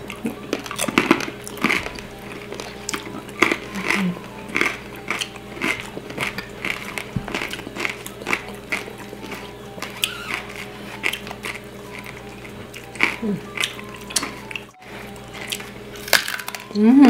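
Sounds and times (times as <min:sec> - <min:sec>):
crunching crispy pork skin: 0:15.3 - 0:16.7.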